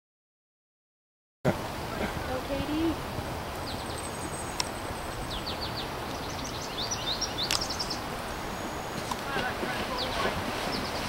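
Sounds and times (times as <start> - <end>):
outdoor background noise: 1.5 - 11.0
bird chirping: 3.6 - 11.0
sharp clicks: 7.4 - 7.7.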